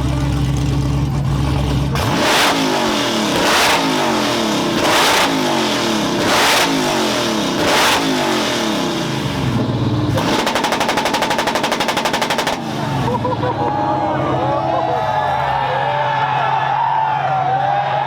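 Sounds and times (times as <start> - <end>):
car engine revving: 0.0 - 15.9
rapid exhaust pops: 6.1 - 13.4.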